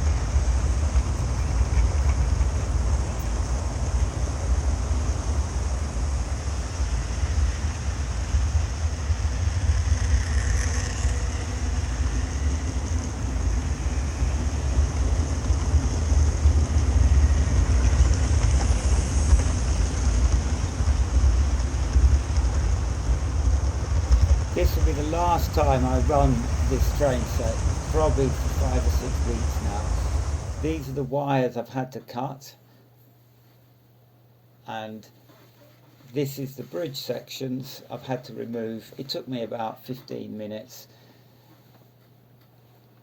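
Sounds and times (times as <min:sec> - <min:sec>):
model trains rumbling on track: 0:00.0 - 0:31.1.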